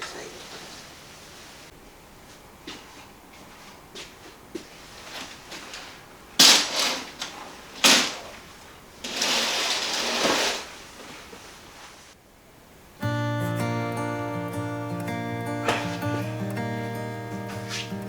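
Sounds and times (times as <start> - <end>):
acoustic guitar music: 13.0 - 18.0.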